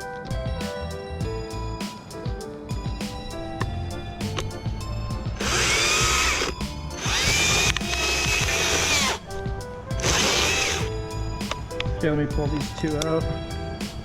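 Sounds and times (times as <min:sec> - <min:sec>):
music: 0:00.0 - 0:14.0
chainsaw motor whine: 0:05.4 - 0:09.2, 0:10.0 - 0:10.9.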